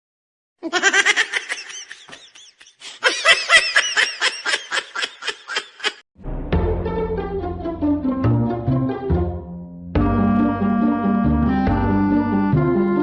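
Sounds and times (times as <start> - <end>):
person giggling: 0.6 - 6.0
music: 6.2 - 13.0.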